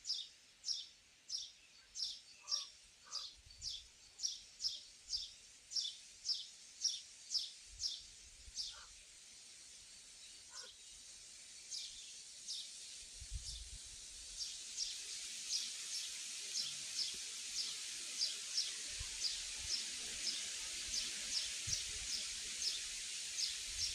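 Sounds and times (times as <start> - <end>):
high-pitched hiss: 0.0 - 23.9.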